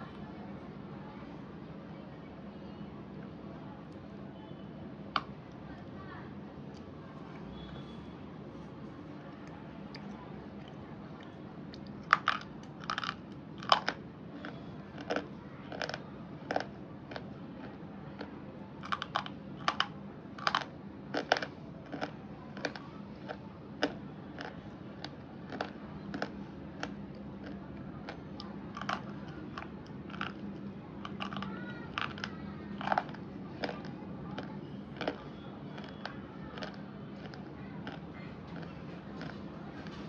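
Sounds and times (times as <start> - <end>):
slate pencil crunching as chewed: 9.4 - 40.0.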